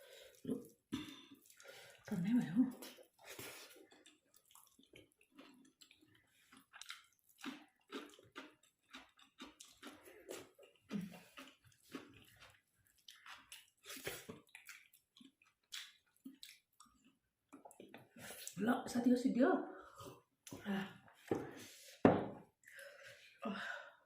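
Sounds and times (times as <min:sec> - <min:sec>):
chewing and wet mouth noises: 0:00.2 - 0:18.6.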